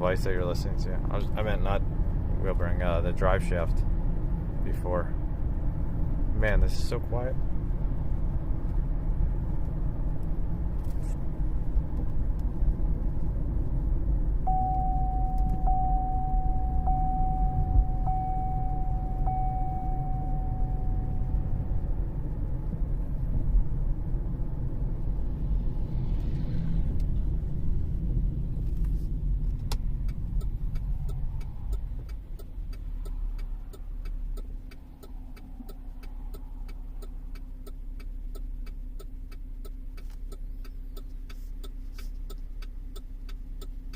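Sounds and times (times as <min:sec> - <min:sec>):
car cabin road rumble: 0:00.0 - 0:43.9
steady tone: 0:14.3 - 0:23.9
even ticking: 0:29.7 - 0:43.9.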